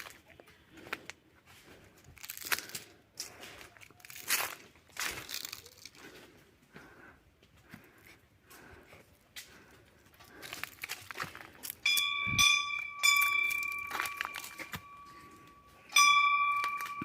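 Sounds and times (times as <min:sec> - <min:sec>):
metal bell ringing: 0:11.8 - 0:17.0.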